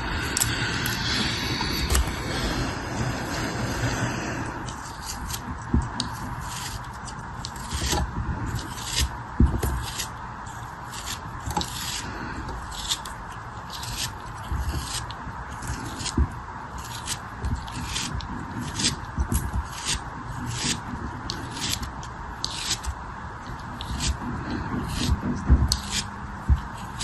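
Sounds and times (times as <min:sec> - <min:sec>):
steady hiss: 0:00.0 - 0:05.8.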